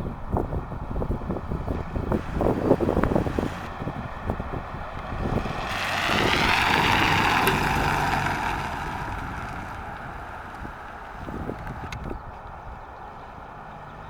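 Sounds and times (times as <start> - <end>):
car passing by: 1.6 - 12.2.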